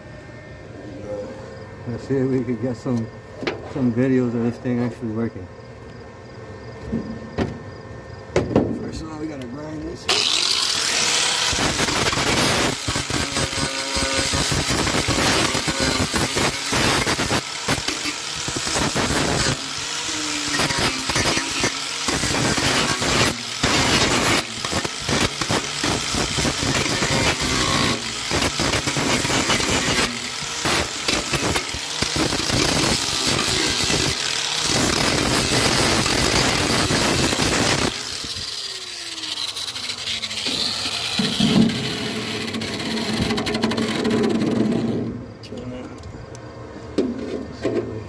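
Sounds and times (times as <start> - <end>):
grinder motor winding down: 10.0 - 45.0
angle grinder grinding steel: 10.1 - 45.0.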